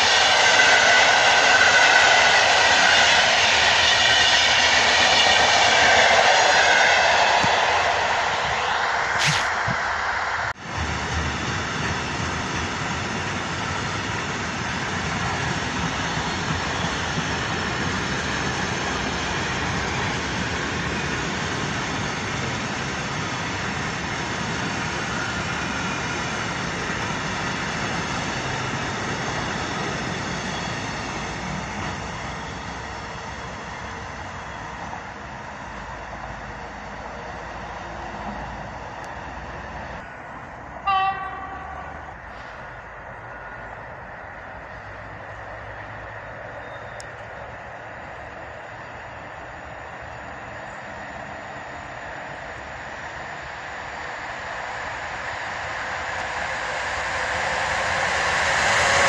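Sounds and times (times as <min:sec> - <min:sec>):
train horn blast: 0:40.8 - 0:42.1.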